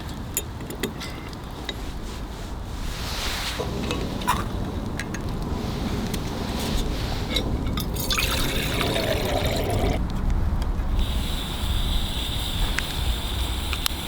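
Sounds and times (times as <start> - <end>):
wind rumble on microphone: 0.0 - 14.0
hot water pouring into container: 7.8 - 10.0.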